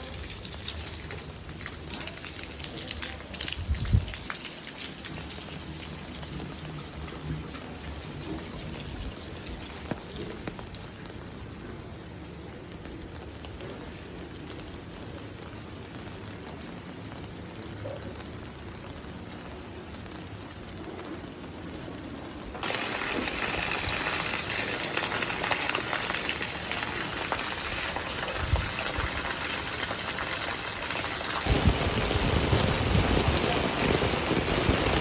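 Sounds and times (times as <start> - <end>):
steady rain falling: 0.0 - 35.0
raindrop ticks: 0.1 - 11.6.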